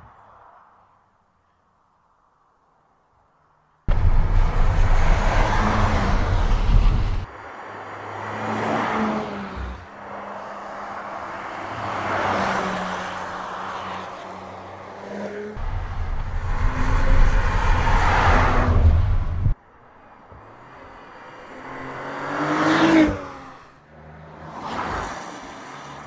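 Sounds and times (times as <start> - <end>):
car engine driving by: 15.6 - 19.6.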